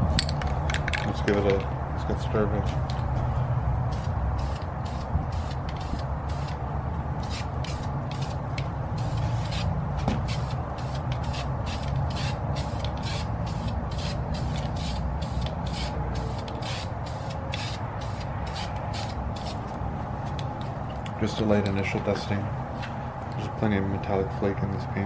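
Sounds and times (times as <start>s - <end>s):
aerosol spray can hissing: 9.0s - 19.6s.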